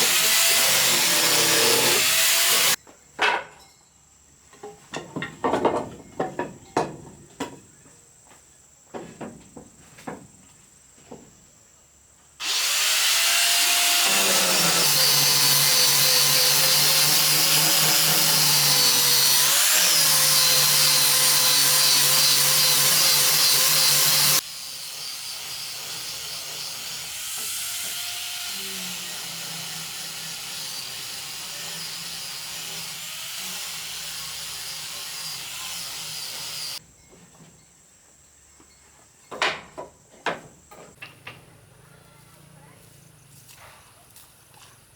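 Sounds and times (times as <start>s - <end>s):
electric power tool on wood: 0.0s - 2.8s, 12.4s - 36.8s.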